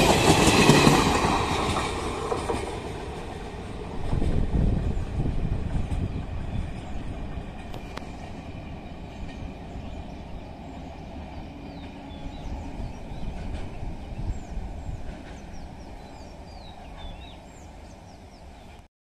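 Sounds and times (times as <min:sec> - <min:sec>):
train coaches rumbling: 0:00.0 - 0:18.9
birds chirping: 0:04.8 - 0:18.8.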